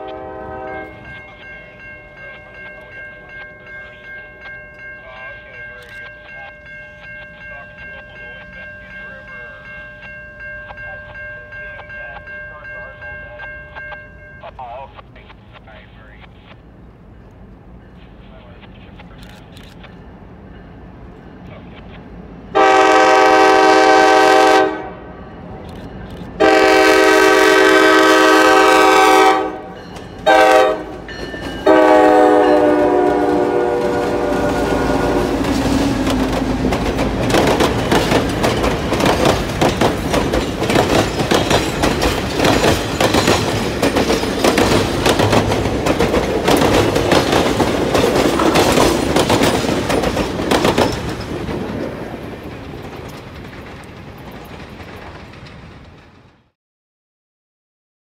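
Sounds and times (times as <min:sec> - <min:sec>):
diesel locomotive horn blasts: 0:00.0 - 0:01.2, 0:22.5 - 0:25.1, 0:26.4 - 0:36.7
diesel locomotives rumbling past: 0:00.0 - 0:56.6
train wheels clacking over rail joints: 0:33.8 - 0:56.5.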